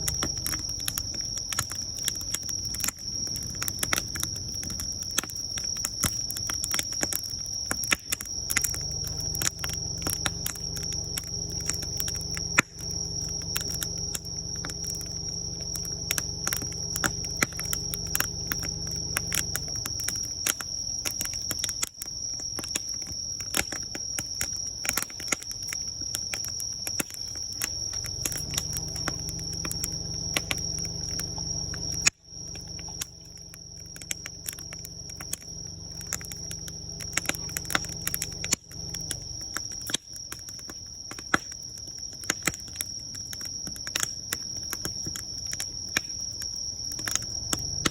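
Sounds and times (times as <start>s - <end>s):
low hum: 0.0s - 1.0s, 8.4s - 20.2s, 27.9s - 39.6s
insects trilling: 0.0s - 47.9s
wood fire crackling and popping: 0.0s - 47.9s.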